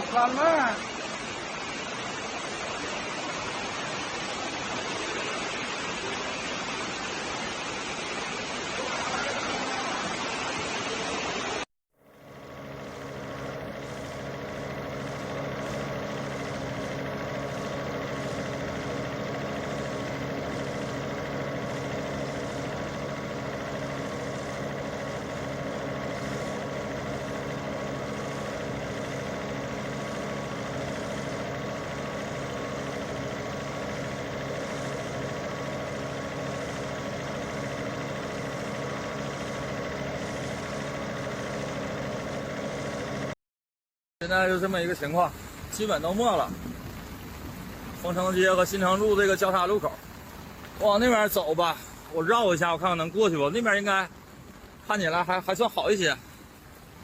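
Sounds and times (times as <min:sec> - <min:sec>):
vehicle engine running: 0:12.0 - 0:43.4, 0:44.3 - 0:54.6.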